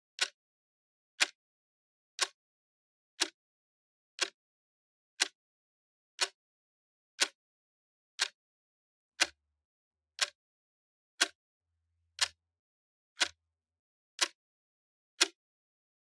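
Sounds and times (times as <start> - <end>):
clock ticking: 12.2 - 12.4.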